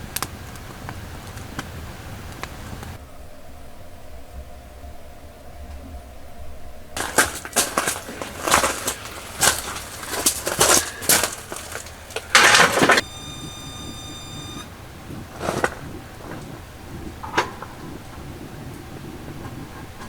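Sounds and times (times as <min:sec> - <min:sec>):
knocks and clatter of handling: 0:07.0 - 0:14.6
loud scraping rustle: 0:07.0 - 0:16.6
steady high-pitched tone: 0:12.3 - 0:16.8.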